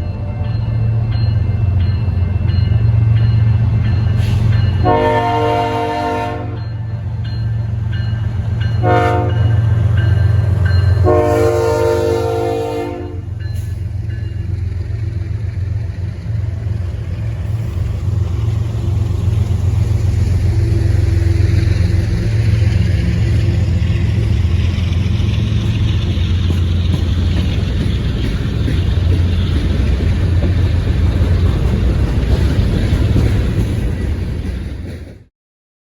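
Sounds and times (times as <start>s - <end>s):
diesel train low rumble: 0.0s - 35.3s
locomotive horn blasts: 4.8s - 6.7s, 8.8s - 9.6s, 11.0s - 13.4s.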